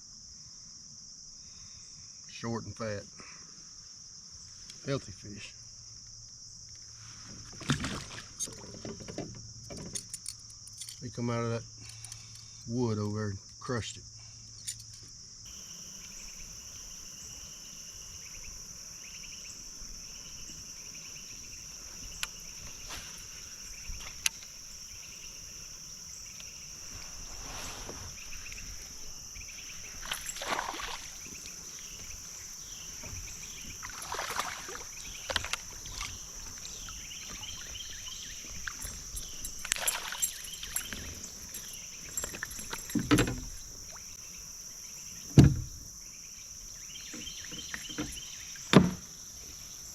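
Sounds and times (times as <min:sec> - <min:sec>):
crickets trilling: 0:00.0 - 0:49.9
water splashes: 0:29.9 - 0:31.5, 0:33.5 - 0:37.8, 0:39.6 - 0:41.0
kayak knocks: 0:42.2 - 0:43.7, 0:45.2 - 0:45.8, 0:47.1 - 0:49.1.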